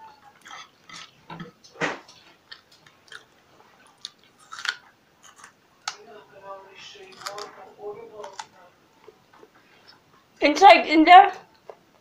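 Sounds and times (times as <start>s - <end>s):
chewing food: 0.1s - 6.0s, 7.0s - 7.6s
crunching raw radish: 3.9s - 6.0s, 7.0s - 7.6s, 8.2s - 8.5s.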